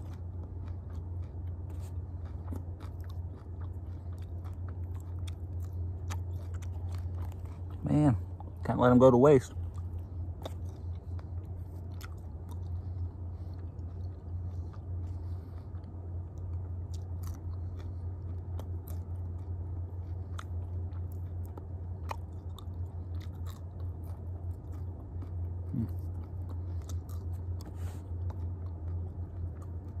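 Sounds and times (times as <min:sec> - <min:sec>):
person chewing crunchy food: 0:00.0 - 0:30.0
steady low hum: 0:00.0 - 0:30.0.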